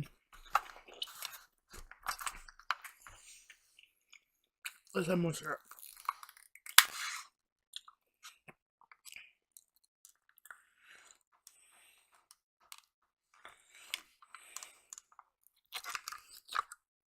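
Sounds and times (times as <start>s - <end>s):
close-up chewing: 0.2s - 5.0s, 5.6s - 16.9s
wet mouth sounds and clicks: 5.7s - 11.2s, 13.8s - 16.8s.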